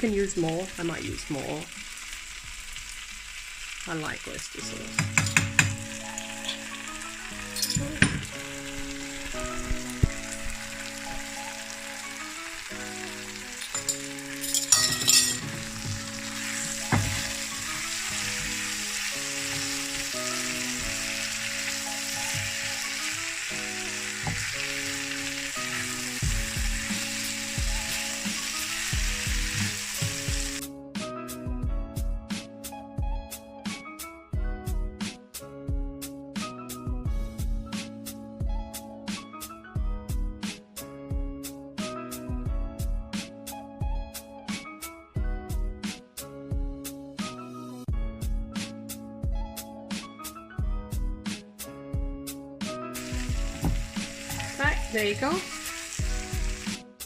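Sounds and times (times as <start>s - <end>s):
soft background music: 0.0s - 1.8s, 3.8s - 57.0s
food sizzling in a pan: 0.0s - 30.6s, 52.9s - 57.0s
utensil scraping and clinking pan: 13.6s - 15.7s.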